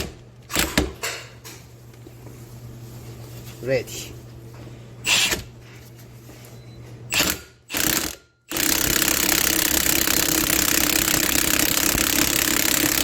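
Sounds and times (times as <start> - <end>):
ratcheting power tool: 5.1 - 5.4, 7.1 - 13.0.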